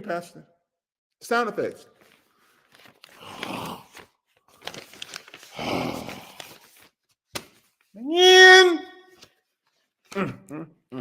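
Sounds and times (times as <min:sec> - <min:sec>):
person sighing: 0:03.1 - 0:04.1, 0:05.4 - 0:06.6.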